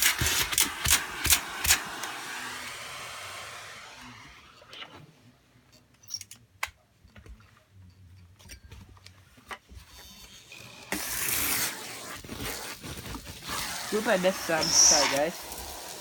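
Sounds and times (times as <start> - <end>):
vacuum suction rushing: 1.0 - 4.6, 13.8 - 16.0.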